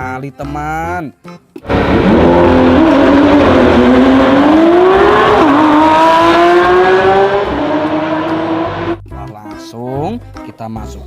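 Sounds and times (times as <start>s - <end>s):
racing car engine revving: 1.6s - 9.0s.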